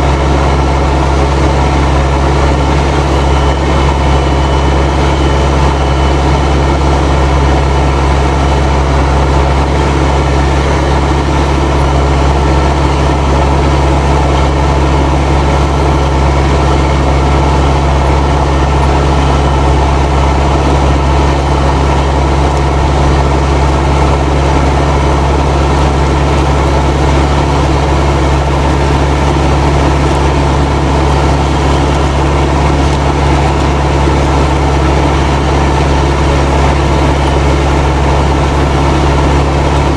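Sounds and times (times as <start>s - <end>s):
tractor diesel engine under load: 0.0s - 39.9s
turbo whistling: 1.0s - 9.5s.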